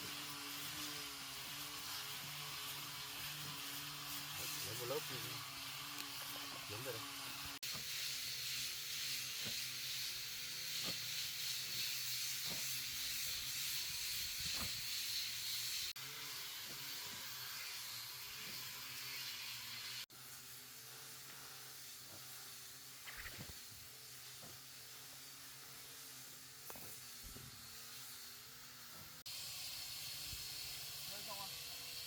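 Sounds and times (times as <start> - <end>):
high-pitched hiss: 7.6 - 32.0.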